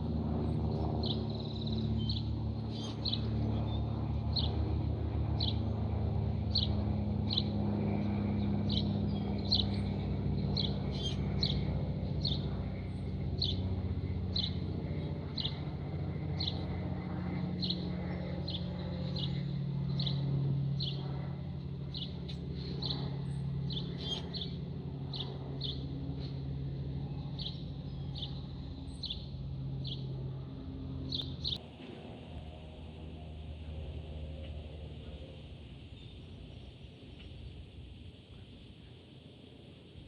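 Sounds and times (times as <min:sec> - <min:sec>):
steady low drone: 0:00.0 - 0:40.0
small bird chirping: 0:10.6 - 0:12.4, 0:21.9 - 0:25.9, 0:31.1 - 0:31.6.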